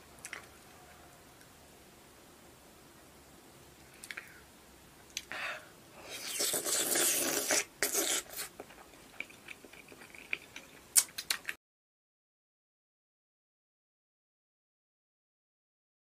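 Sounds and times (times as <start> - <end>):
wet chewing and lip smacking: 6.2 - 11.6.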